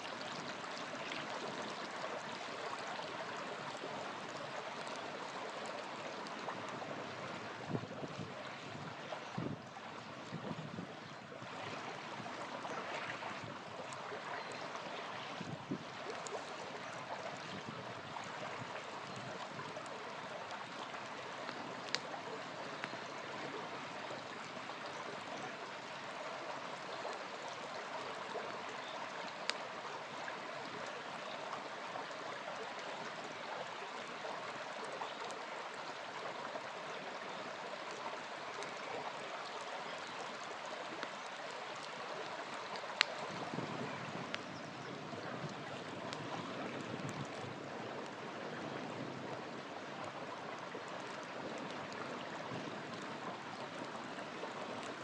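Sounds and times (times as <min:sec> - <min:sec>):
small river flowing: 0:00.0 - 0:55.0
campfire crackling and popping: 0:14.6 - 0:24.6, 0:28.4 - 0:29.7, 0:40.0 - 0:44.6.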